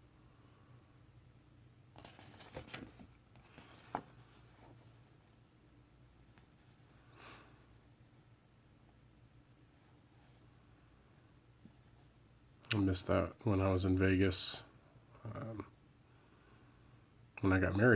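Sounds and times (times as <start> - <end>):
paper rustling and scraping: 2.0 - 5.0.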